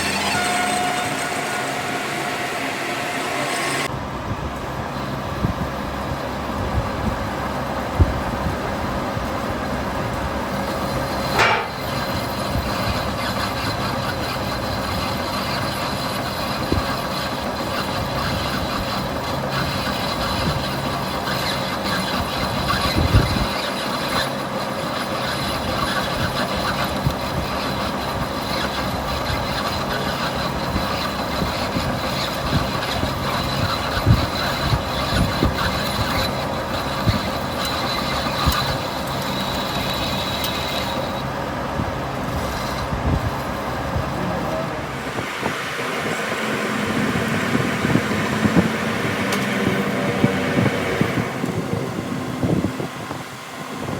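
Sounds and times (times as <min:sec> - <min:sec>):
machine humming: 0:00.0 - 0:04.2, 0:10.5 - 0:24.2, 0:26.6 - 0:53.9
sharp metal knocks: 0:11.3 - 0:12.5.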